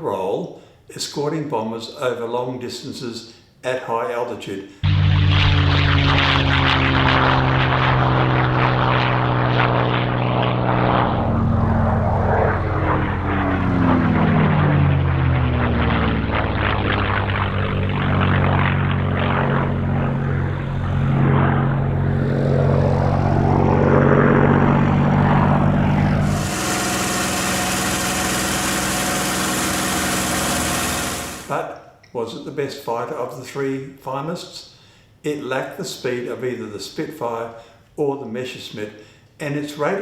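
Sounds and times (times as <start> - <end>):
propeller aircraft engine droning: 4.8 - 31.6.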